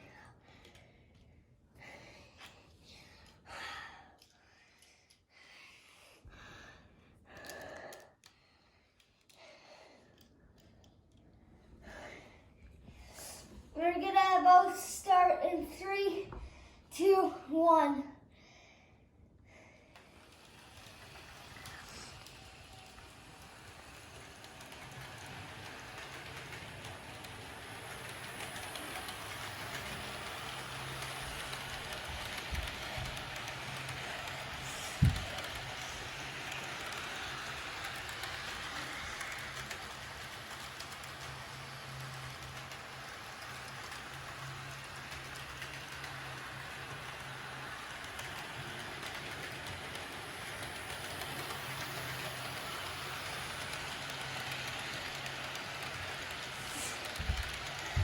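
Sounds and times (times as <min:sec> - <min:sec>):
model train motor hum: 0:19.9 - 0:58.0
wheels rushing on rails: 0:19.9 - 0:58.0.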